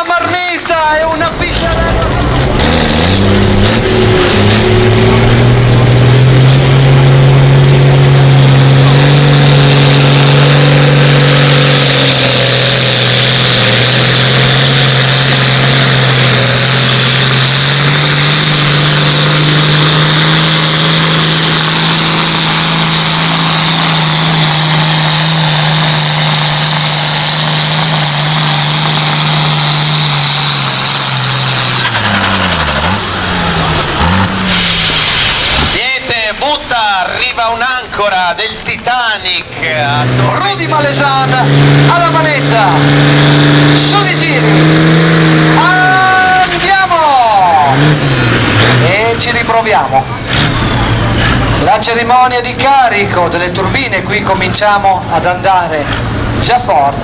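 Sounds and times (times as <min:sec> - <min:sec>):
tractor engine running flat out: 0:00.0 - 0:57.0
high whine: 0:13.8 - 0:42.9.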